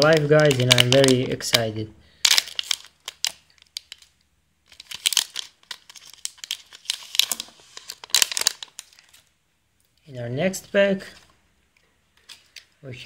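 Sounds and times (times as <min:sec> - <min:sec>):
foil pack crinkling and tearing: 0:00.0 - 0:09.3.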